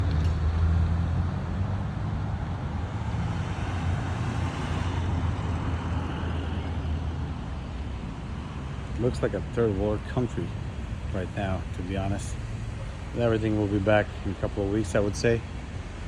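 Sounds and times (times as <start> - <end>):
road noise: 0.0 - 16.0
traffic engine hum: 0.0 - 16.0.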